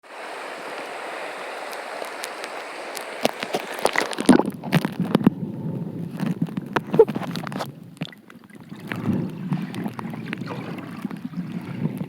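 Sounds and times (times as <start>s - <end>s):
stream water running: 0.0s - 12.0s
muffled underwater gurgling bubbles: 3.6s - 12.0s.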